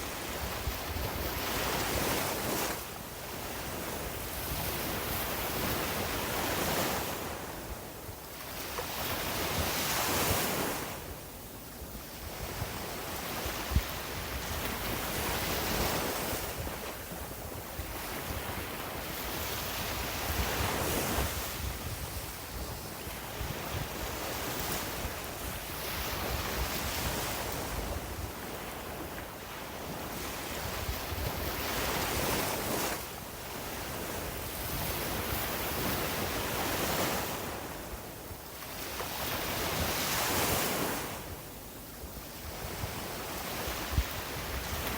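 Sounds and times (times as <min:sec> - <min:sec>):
wind rumbling on microphone: 0:11.8 - 0:38.2, 0:42.2 - 0:44.9.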